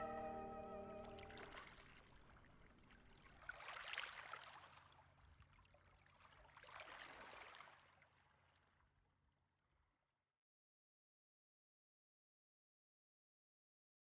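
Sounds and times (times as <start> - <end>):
music: 0.0 - 1.4.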